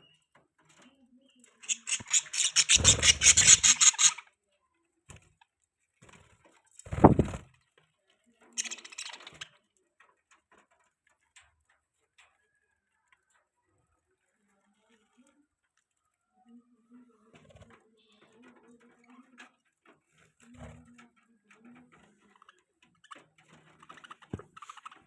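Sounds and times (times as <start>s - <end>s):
budgies rasping: 1.5s - 4.3s, 8.6s - 9.5s, 22.2s - 25.0s.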